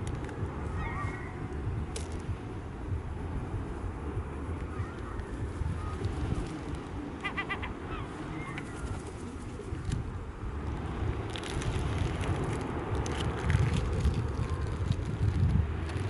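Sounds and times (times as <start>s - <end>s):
wind on microphone: 0.0s - 16.0s
bird calls: 0.7s - 1.6s, 4.6s - 9.8s
pebbles rattling: 11.3s - 16.0s.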